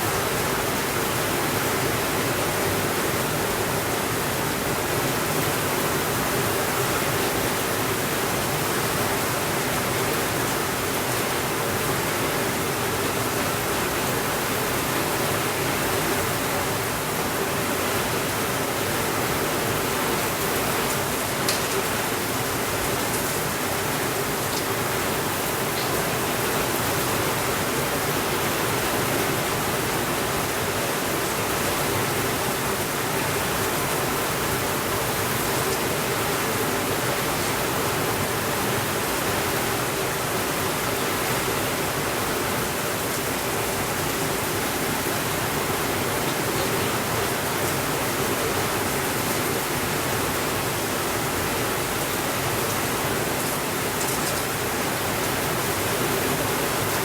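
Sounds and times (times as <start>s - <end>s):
heavy rainfall: 0.0s - 57.0s.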